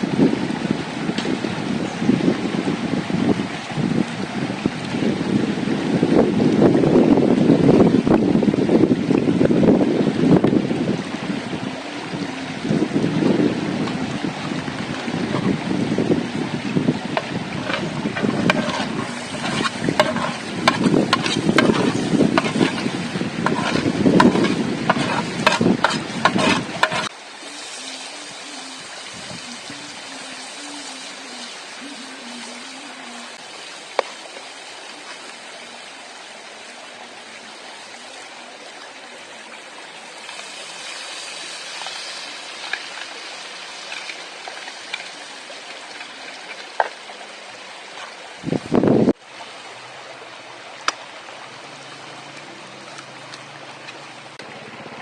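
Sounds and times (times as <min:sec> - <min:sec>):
wind buffeting microphone: 0:00.0 - 0:27.1, 0:28.8 - 0:33.5, 0:48.2 - 0:49.2
food sizzling in a pan: 0:17.6 - 0:35.4, 0:40.1 - 0:46.5.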